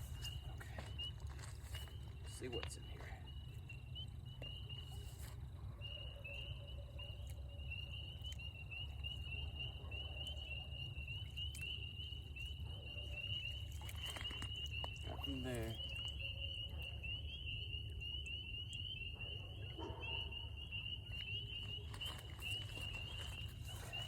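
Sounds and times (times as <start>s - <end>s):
frogs peeping in chorus: 0.0s - 24.0s.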